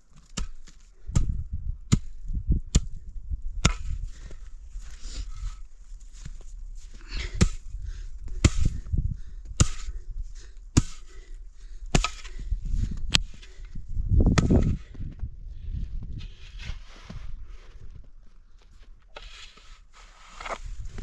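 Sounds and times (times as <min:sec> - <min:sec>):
sharp chopping strikes: 0:09.6 - 0:09.9, 0:11.9 - 0:12.3.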